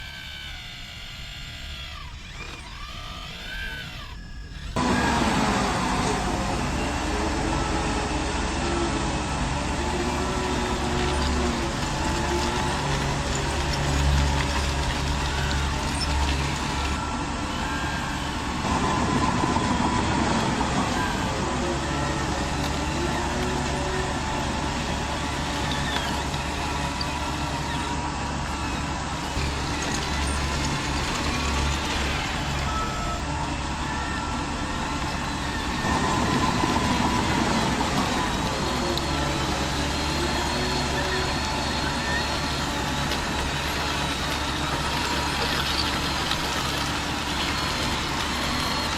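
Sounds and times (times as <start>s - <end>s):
electric motor and gear whine: 0.0s - 48.9s
low engine-like hum: 0.0s - 48.9s.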